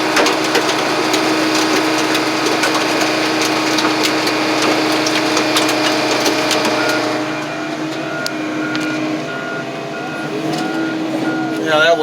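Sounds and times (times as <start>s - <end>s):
metal cracking and snapping: 0.0s - 7.2s
car crusher machine drone: 0.0s - 12.0s
vehicle reversing beeper: 5.9s - 12.0s.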